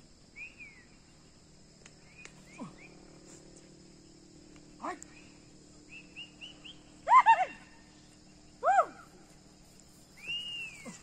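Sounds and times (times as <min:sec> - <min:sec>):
bird chirps and whistles: 0:00.4 - 0:00.9, 0:05.1 - 0:06.9, 0:10.2 - 0:10.9.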